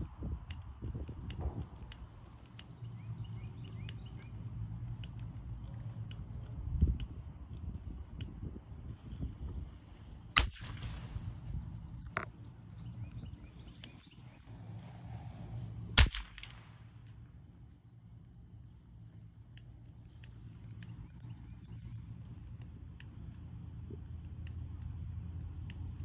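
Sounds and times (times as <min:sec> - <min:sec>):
sharp bangs: 0:10.2 - 0:12.2, 0:16.0 - 0:16.8.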